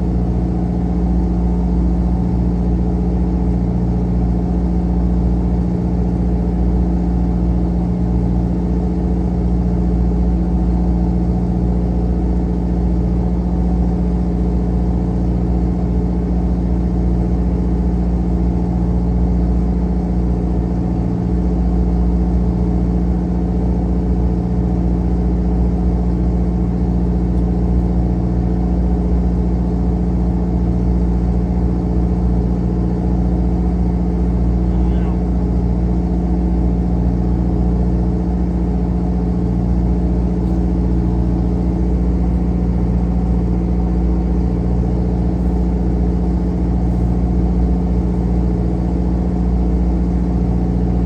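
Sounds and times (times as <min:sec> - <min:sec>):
boat engine droning: 0:24.7 - 0:51.0.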